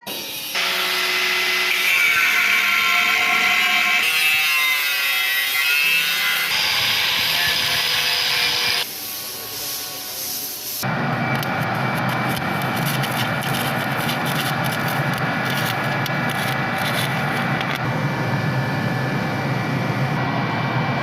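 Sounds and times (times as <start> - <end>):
power tools grinding metal: 0.1 - 10.9.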